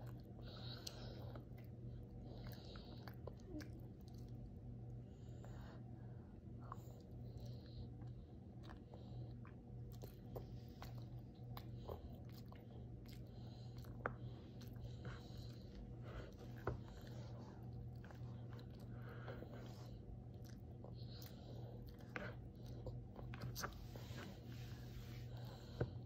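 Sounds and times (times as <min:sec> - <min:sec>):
steady low hum: 0:00.0 - 0:26.0
toddler chewing: 0:06.6 - 0:26.0.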